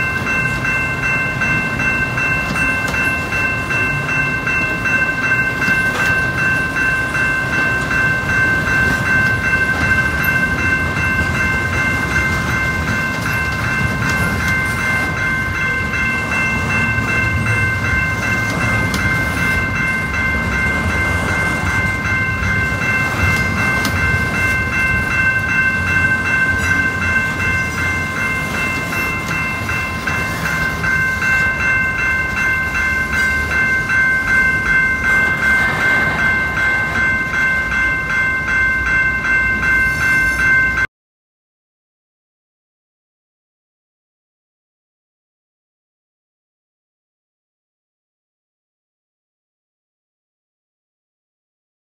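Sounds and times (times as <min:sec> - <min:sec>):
freight train rumbling: 0:00.0 - 0:40.9
rhythmic clatter of train cars: 0:00.0 - 0:40.9
steady high-pitched tones: 0:00.0 - 0:40.9.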